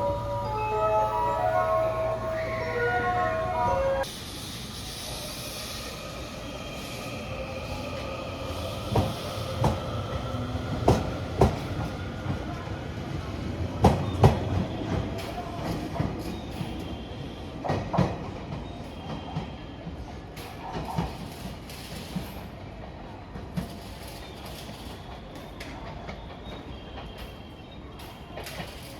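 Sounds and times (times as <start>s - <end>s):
train running hum: 0.0s - 28.9s
train wheels clacking on rail joints: 8.8s - 12.7s, 13.6s - 16.9s, 17.6s - 28.9s.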